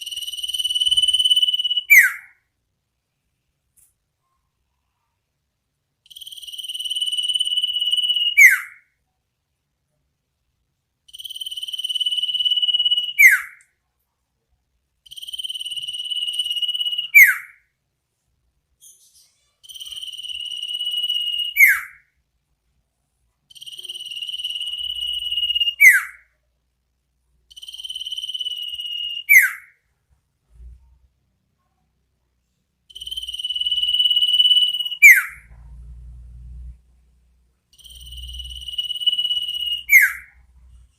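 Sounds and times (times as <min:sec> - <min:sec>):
bird trilling call: 0:33.0 - 0:35.4, 0:37.8 - 0:40.4.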